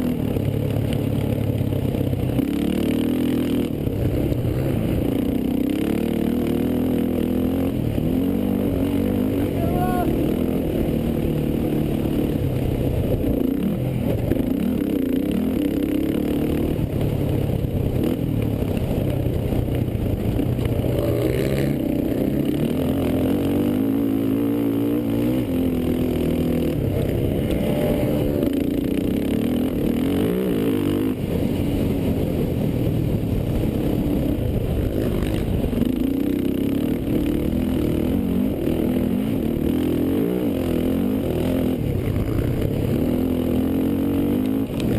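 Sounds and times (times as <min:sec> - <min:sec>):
quad engines revving: 0:00.0 - 0:17.1, 0:20.2 - 0:31.3.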